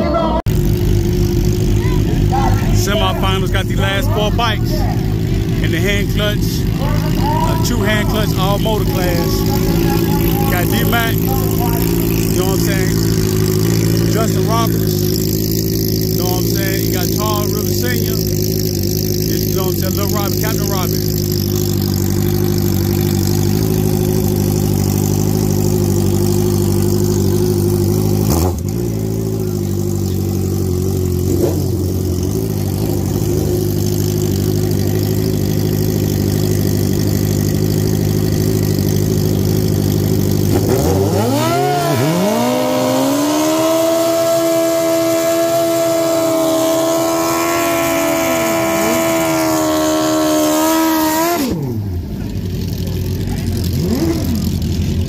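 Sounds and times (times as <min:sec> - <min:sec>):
motorcycle engine revving sharply: 0:00.0 - 0:54.8
motorcycle engines idling: 0:00.0 - 0:55.0.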